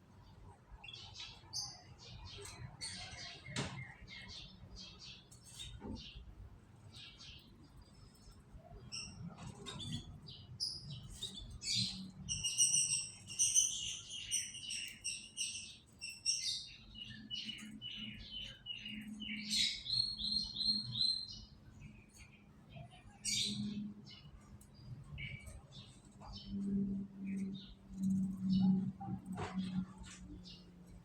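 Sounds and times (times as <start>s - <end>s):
canary singing: 7.0s - 30.7s.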